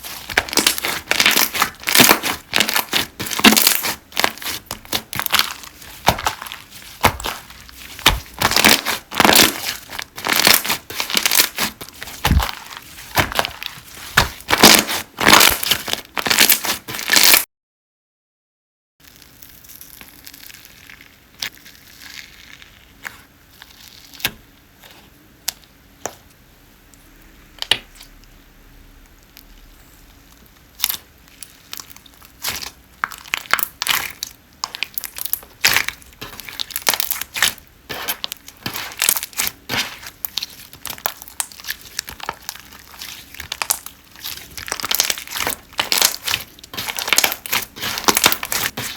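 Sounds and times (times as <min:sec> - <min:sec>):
slime squeezed by hand: 0:00.0 - 0:17.4.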